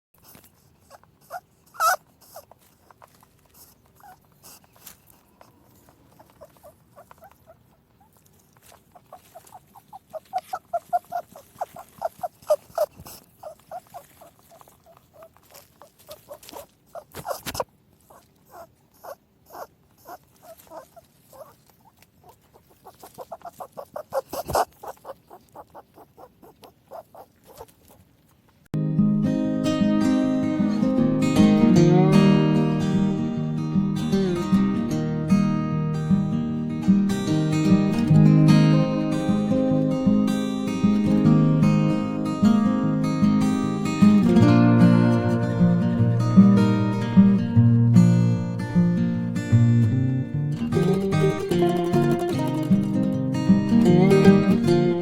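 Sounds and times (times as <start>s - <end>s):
small animal squeaking: 0.2s - 28.1s, 50.6s - 55.0s.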